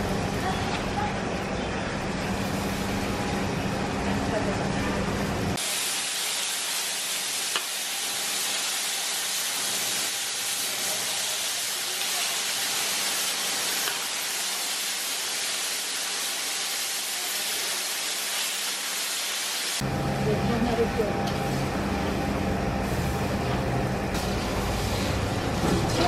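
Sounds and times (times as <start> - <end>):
vegetables sizzling in a pan: 5.6 - 19.8.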